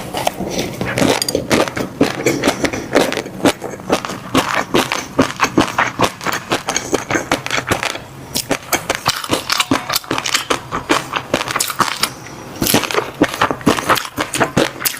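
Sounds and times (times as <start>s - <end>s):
chewing crunchy fish roe: 0.0s - 14.9s.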